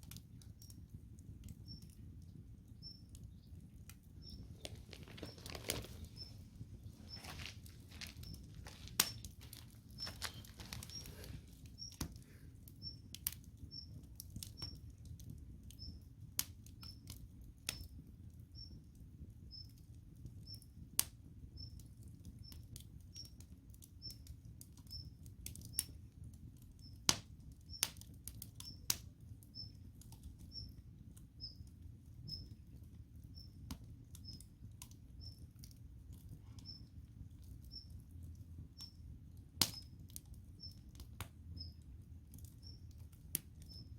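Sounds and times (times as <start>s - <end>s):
campfire crackling: 0.0s - 43.9s
low rumble of flames: 0.0s - 43.9s
faint high chirp: 1.6s - 2.0s, 2.8s - 3.6s, 4.2s - 12.0s, 12.8s - 14.0s, 24.9s - 25.2s, 30.4s - 30.8s, 31.4s - 32.6s, 33.3s - 33.6s, 35.2s - 35.4s, 36.5s - 36.9s, 37.7s - 38.0s, 38.8s - 39.0s, 41.6s - 41.8s, 43.6s - 43.9s.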